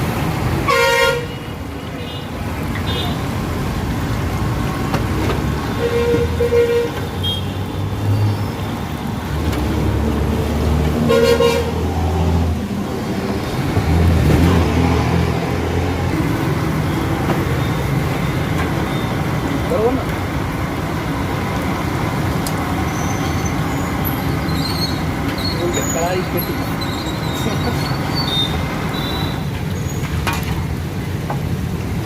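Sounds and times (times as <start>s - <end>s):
car horns honking: 0.7s - 2.2s, 5.7s - 7.6s, 11.1s - 11.8s
vehicle engines running: 1.6s - 32.0s.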